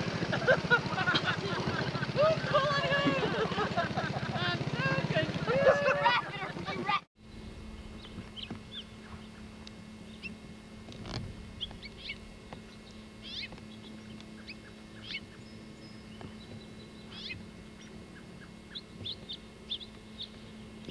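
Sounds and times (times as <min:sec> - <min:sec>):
steady low hum: 0:00.0 - 0:20.9
small birds chirping: 0:06.4 - 0:20.9.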